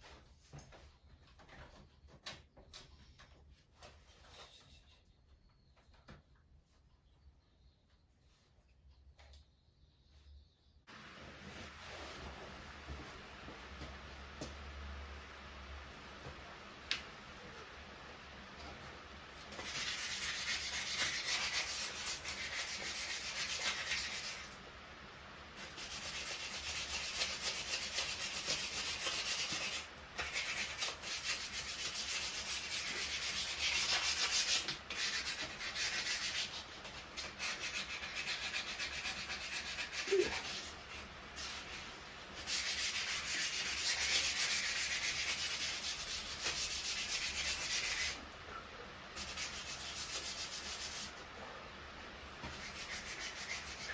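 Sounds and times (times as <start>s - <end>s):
hand sanding: 19.5s - 24.6s, 25.6s - 48.2s, 49.2s - 51.3s, 52.4s - 53.9s.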